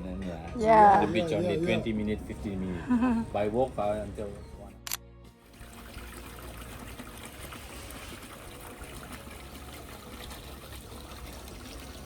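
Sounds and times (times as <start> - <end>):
water trickling and running: 5.4 - 12.0.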